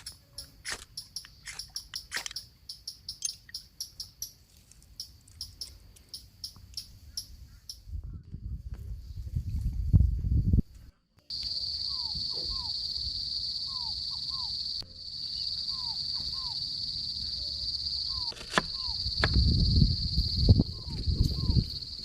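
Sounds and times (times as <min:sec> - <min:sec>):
insects droning: 0:11.3 - 0:22.0
bird whistling: 0:11.8 - 0:12.8, 0:13.6 - 0:14.6, 0:15.3 - 0:16.6, 0:17.3 - 0:19.1, 0:20.8 - 0:21.7.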